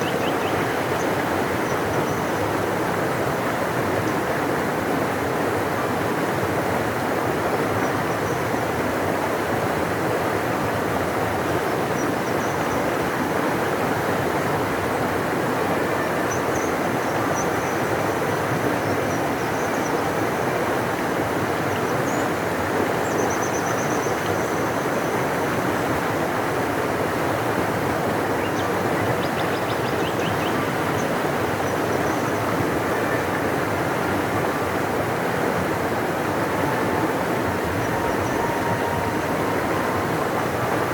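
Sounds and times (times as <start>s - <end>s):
river flowing: 0.0s - 40.9s.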